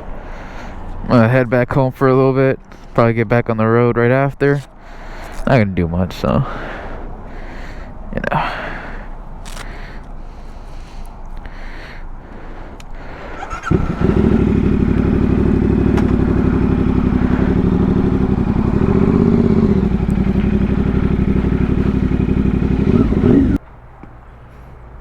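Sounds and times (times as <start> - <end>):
motorcycle engine idling: 13.2 - 23.6.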